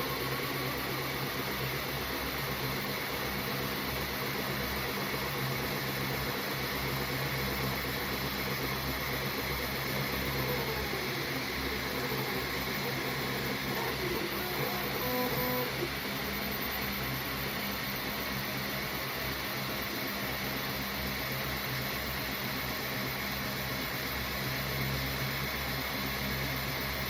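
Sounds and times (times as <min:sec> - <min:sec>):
small motor humming and hissing: 0:00.0 - 0:27.0.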